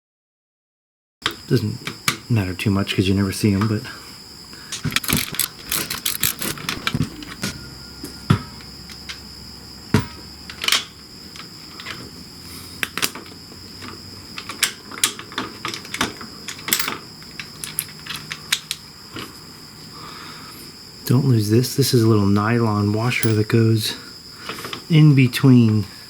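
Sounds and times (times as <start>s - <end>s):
hand tools clinking on bolts: 4.8s - 7.6s, 15.8s - 18.3s, 23.2s - 23.6s.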